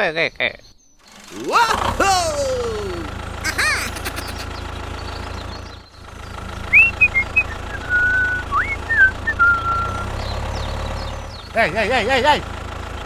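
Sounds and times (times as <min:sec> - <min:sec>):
low engine-like drone: 0:01.0 - 0:13.0
short whistled notes: 0:06.8 - 0:10.0.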